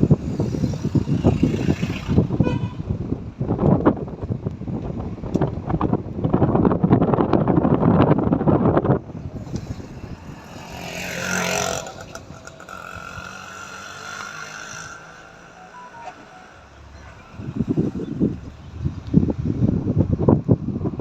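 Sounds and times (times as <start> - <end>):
vehicle engine passing by: 9.3 - 19.7.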